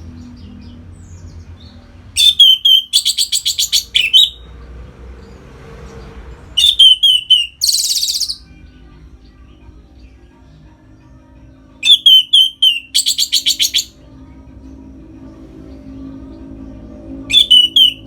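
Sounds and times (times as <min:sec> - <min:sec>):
bird singing whistles and trill: 0:02.2 - 0:04.4, 0:06.6 - 0:08.4, 0:11.8 - 0:14.0, 0:17.3 - 0:18.0.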